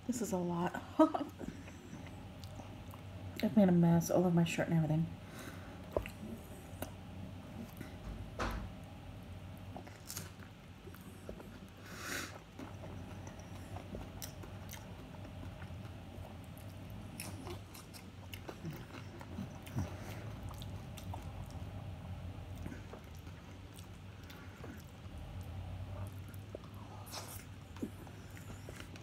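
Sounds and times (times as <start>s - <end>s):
person chewing with wet smacking: 1.3s - 3.5s, 5.8s - 7.0s, 9.6s - 29.0s.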